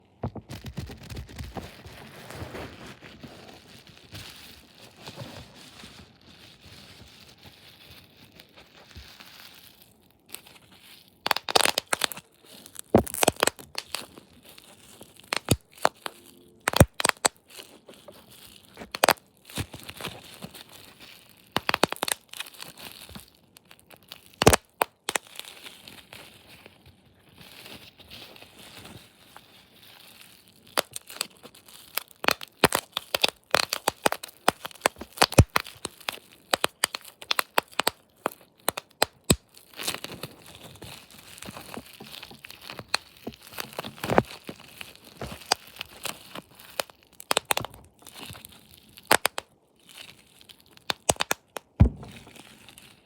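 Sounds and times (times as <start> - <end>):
soft rustling and crinkling: 0.0 - 53.0
sharp cracks and clicks: 11.3 - 12.3, 12.9 - 14.1, 15.3 - 17.4, 18.8 - 19.2, 21.6 - 22.2, 24.3 - 25.3, 31.9 - 40.1, 42.0 - 47.8, 49.0 - 49.5, 50.8 - 52.3.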